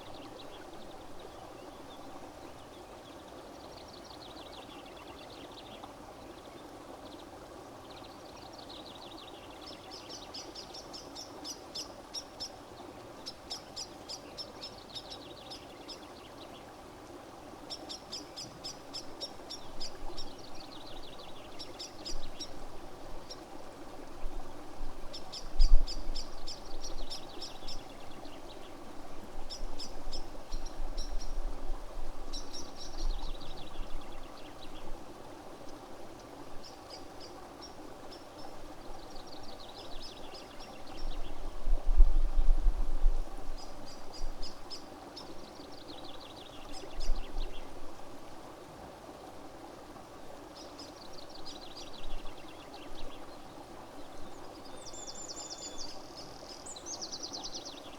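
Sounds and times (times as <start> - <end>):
songbird singing: 25.1 - 31.4, 32.3 - 35.0, 35.7 - 41.5, 43.5 - 47.8, 50.5 - 57.9.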